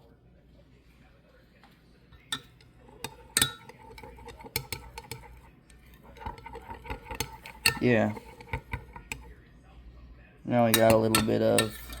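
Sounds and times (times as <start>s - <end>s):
utensil clinking against cup: 2.2s - 9.4s, 10.8s - 12.0s.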